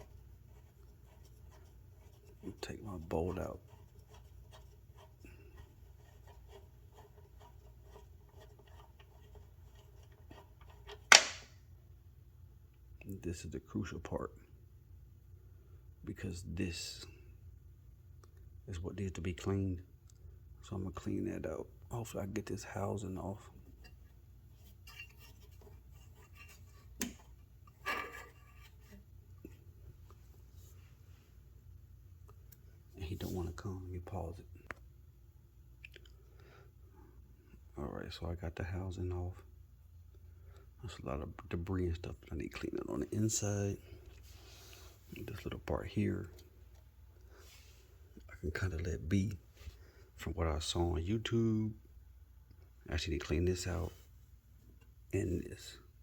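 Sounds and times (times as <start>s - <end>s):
sharp knock: 11.1s - 11.6s
small clicks and rubbing: 23.6s - 30.9s.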